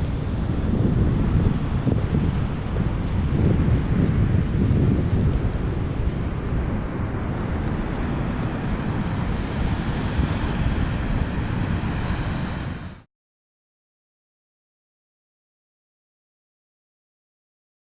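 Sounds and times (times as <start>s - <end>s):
waterfall roaring: 0.0s - 13.0s
wind buffeting microphone: 0.0s - 13.0s
sea surf: 0.0s - 13.1s.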